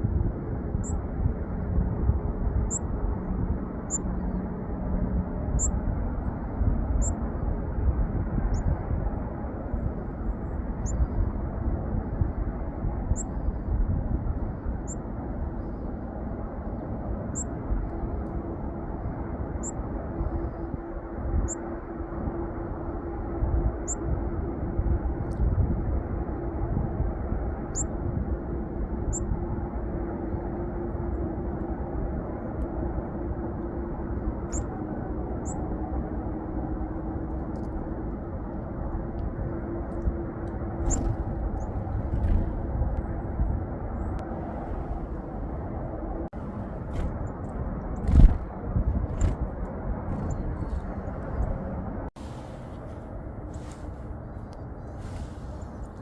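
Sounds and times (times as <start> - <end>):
low outdoor rumble: 0.0 - 56.0
small birds chirping: 34.4 - 34.7, 40.8 - 42.6, 50.1 - 51.6
small bird high call: 40.8 - 42.4.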